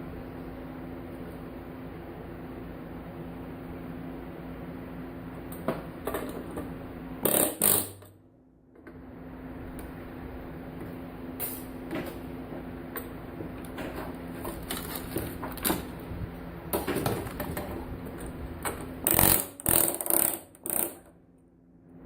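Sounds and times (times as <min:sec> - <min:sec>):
steady hum: 0:00.0 - 0:22.0
clatter of parts: 0:13.0 - 0:16.0, 0:16.7 - 0:21.1.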